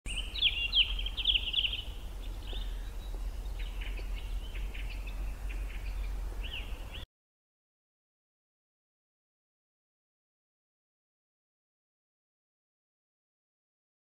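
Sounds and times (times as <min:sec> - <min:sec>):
steady low rumble: 0:00.1 - 0:07.0
songbird chirping: 0:00.1 - 0:07.1.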